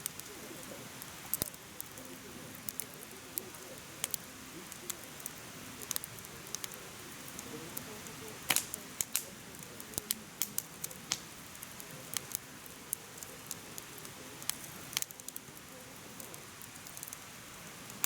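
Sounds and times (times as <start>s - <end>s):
firewood crackling and popping: 0.0s - 18.0s
flame hissing: 0.0s - 18.0s.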